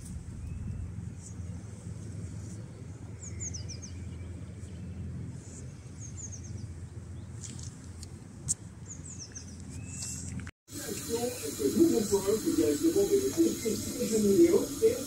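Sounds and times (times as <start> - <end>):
low outdoor rumble: 0.0 - 15.0
small birds chirping: 2.4 - 7.9, 8.5 - 10.4.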